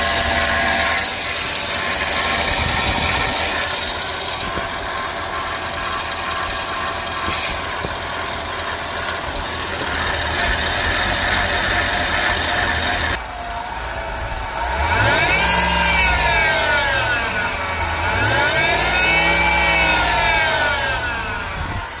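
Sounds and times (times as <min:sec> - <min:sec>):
engine running and revving: 0:00.0 - 0:22.0.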